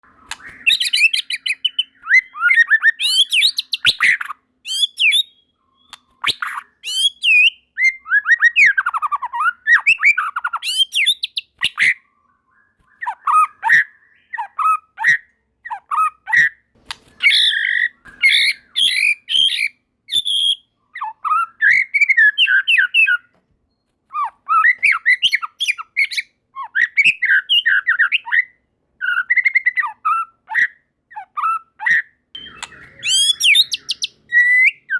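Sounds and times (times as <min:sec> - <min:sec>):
bird singing whistled phrases: 0:00.0 - 0:16.1, 0:17.1 - 0:23.3, 0:24.2 - 0:34.9.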